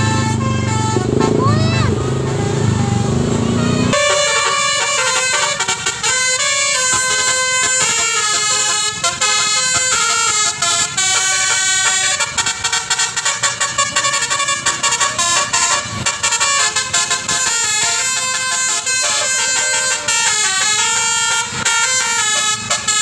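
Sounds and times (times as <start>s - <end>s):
bus horn playing fast melody: 0.0s - 23.0s.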